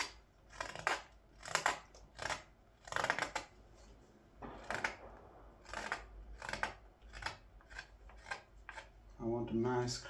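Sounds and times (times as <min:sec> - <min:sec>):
blade paring green wood: 0:00.0 - 0:09.9.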